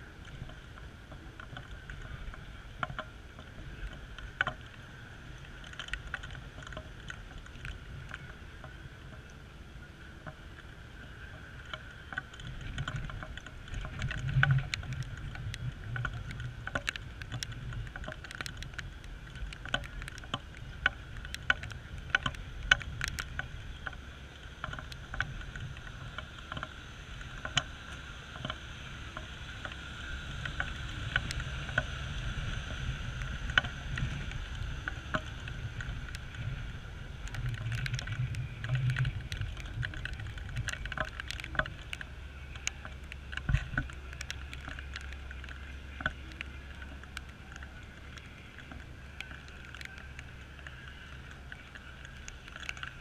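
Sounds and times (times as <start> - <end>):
raindrops tapping on camera: 0.0 - 53.0
steady low rumble: 0.0 - 53.0.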